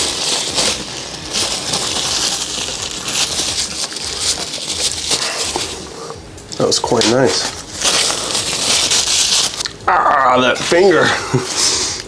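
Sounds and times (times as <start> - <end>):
crunchy chewing of fried chicken: 0.0 - 6.2.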